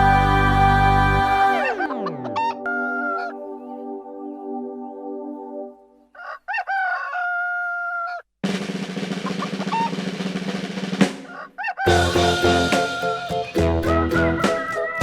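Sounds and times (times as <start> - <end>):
rooster crowing: 6.2 - 8.2, 11.3 - 13.2.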